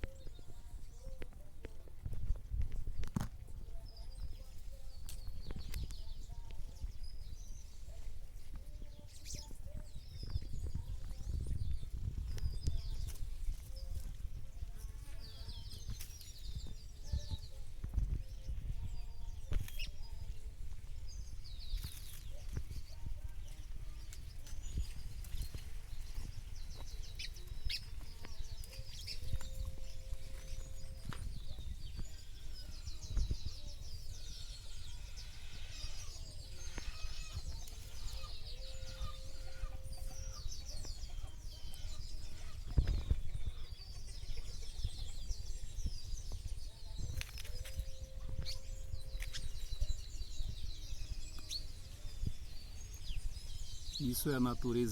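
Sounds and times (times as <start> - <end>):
birds chirping and trilling: 0.0 - 54.9.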